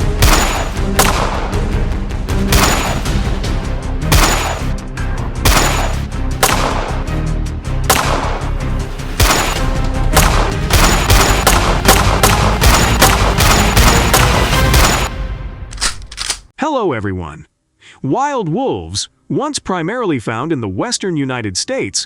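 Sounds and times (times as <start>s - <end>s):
gunshots: 0.0s - 1.6s, 2.4s - 3.2s, 4.1s - 4.8s, 5.4s - 7.1s, 7.8s - 15.2s
background music: 0.0s - 16.4s.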